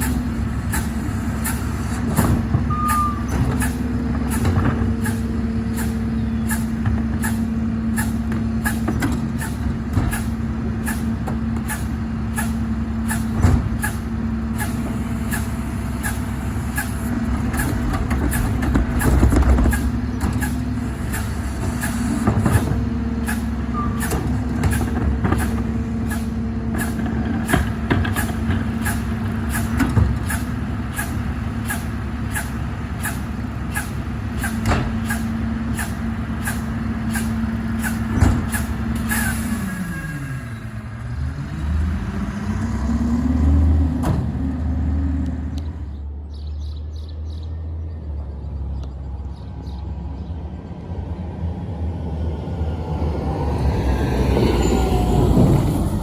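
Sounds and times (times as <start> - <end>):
garbage truck droning hum: 0.0 - 46.3, 47.6 - 56.0.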